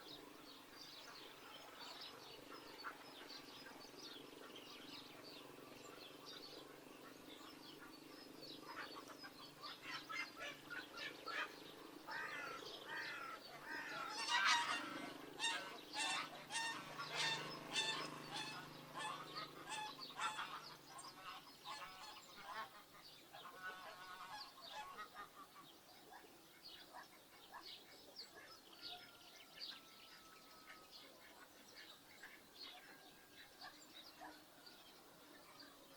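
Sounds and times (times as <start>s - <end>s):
geese honking: 8.6s - 25.5s.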